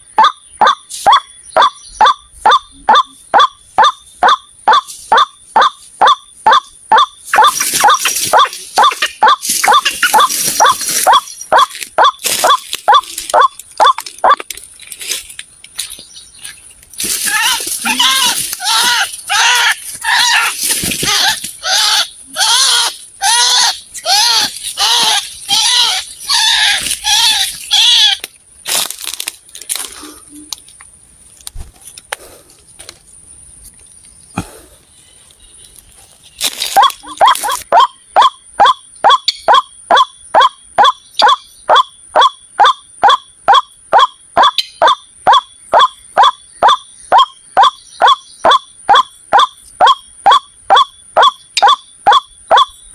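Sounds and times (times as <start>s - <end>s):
waterhen calling: 0.0s - 14.4s, 17.0s - 28.2s, 36.8s - 52.7s.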